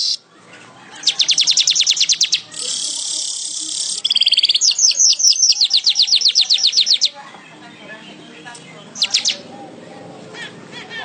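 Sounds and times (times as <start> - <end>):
weaver bird singing: 0.0 - 0.2, 0.9 - 9.6.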